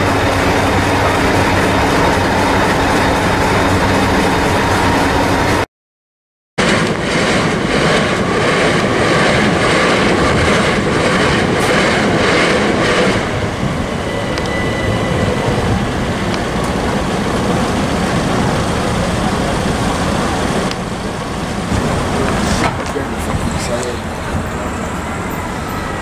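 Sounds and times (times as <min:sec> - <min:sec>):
train wheels clacking over rail joints: 0:15.7 - 0:26.0.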